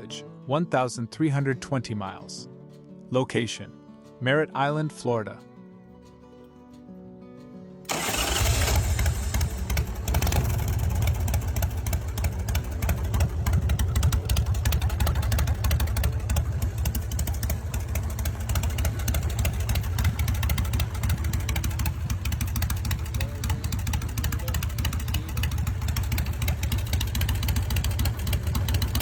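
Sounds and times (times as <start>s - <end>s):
motorcycle engine running: 7.9s - 29.0s.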